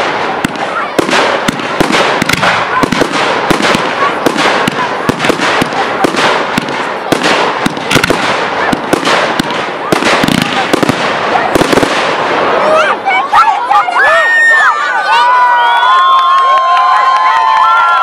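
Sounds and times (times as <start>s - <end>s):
fireworks bangs and crackling: 0.0s - 13.6s.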